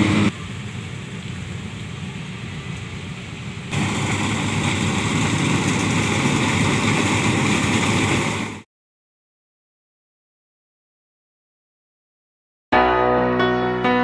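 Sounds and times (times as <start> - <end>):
combine harvester running: 0.0 - 8.6.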